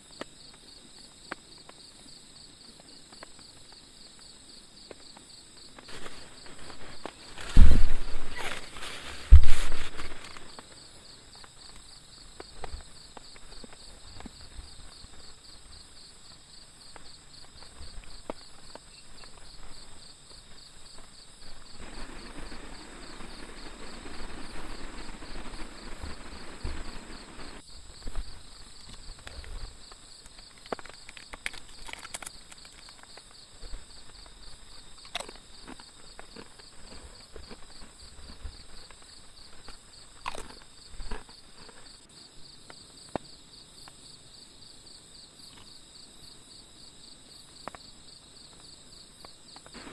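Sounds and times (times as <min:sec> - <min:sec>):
insects trilling: 0:00.0 - 0:49.9
clicks and knocks of handling: 0:30.2 - 0:33.3.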